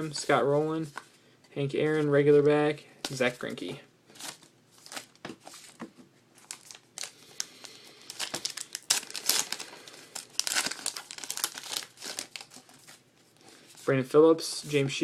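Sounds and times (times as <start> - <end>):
foil wrapper tearing and crinkling: 6.4 - 13.0.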